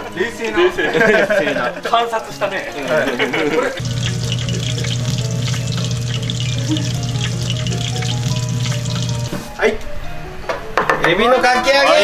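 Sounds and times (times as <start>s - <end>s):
low background music: 0.0s - 12.0s
food frying in hot oil: 2.9s - 9.5s.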